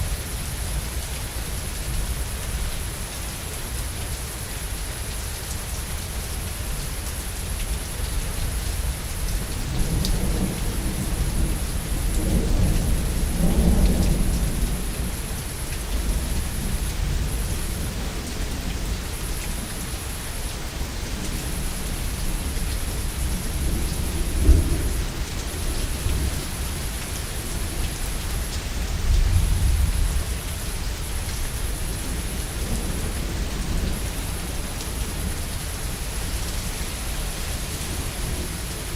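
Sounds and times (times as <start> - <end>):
steady rain: 0.0 - 38.9
low rumble of thunder: 8.0 - 38.9.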